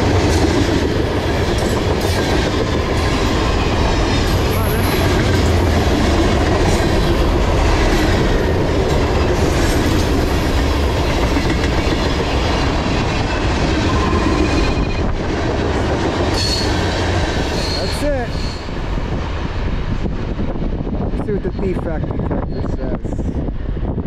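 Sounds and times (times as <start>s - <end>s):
wheels clickety-clack: 0.0s - 18.0s
steel wheels rumbling on rail: 0.0s - 24.0s.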